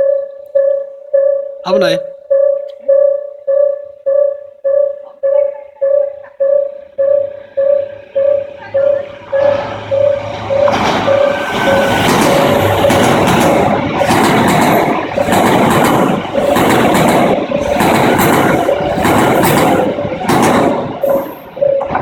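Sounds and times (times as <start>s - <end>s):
repeating on-off tone: 0.0s - 15.4s
train rumbling past: 3.0s - 22.0s.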